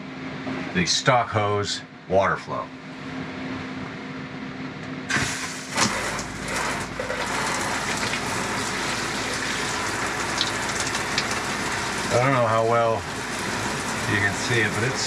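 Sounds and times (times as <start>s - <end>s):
water spraying from shower head: 5.1s - 15.0s.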